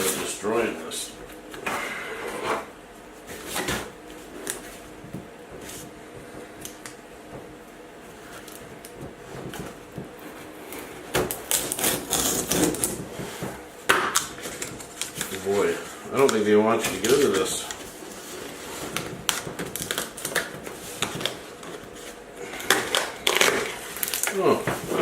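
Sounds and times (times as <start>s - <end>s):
packaging rustling: 8.3s - 25.0s
packaging crackling and clicking: 11.3s - 13.1s, 14.1s - 17.8s, 18.9s - 21.9s, 22.6s - 25.0s.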